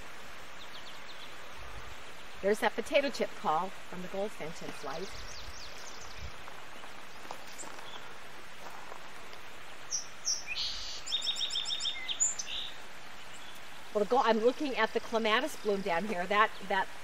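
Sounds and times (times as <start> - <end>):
faint steady hiss: 0.0 - 17.0
songbird singing: 0.0 - 17.0.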